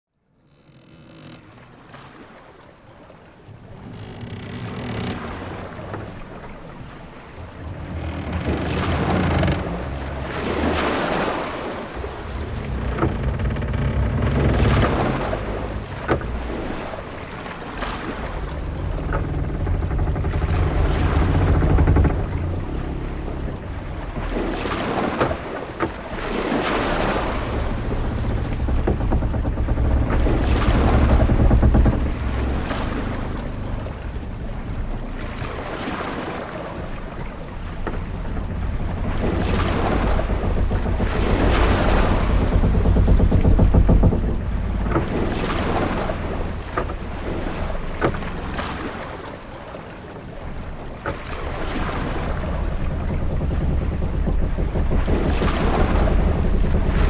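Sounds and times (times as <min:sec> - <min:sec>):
deep rumble of wind and water: 0:00.1 - 0:57.0
waves surging against hull: 0:00.4 - 0:57.0
sharp knocks: 0:03.5 - 0:36.1, 0:36.8 - 0:49.1, 0:51.0 - 0:57.0.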